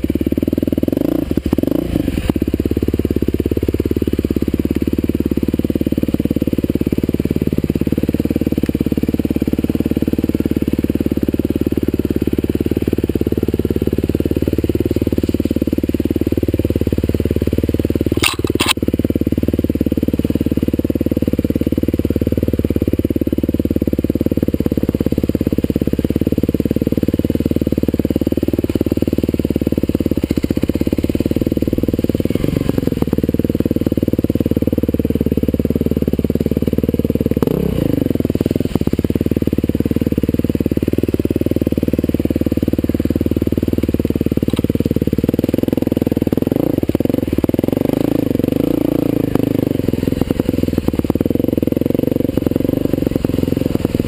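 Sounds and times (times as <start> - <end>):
dirt bike engine revving: 0.7 - 2.7, 25.4 - 54.0.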